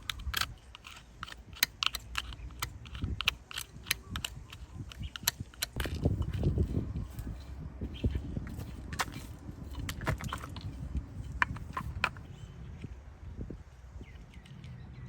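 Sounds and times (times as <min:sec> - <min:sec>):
clicks and taps of tools: 0:00.0 - 0:07.3.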